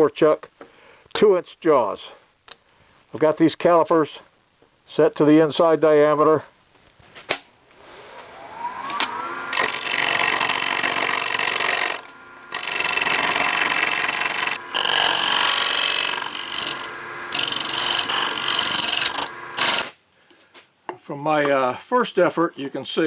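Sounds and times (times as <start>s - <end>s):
wood lathe motor whine: 7.7s - 19.9s
turning tool cutting wood: 7.7s - 20.0s.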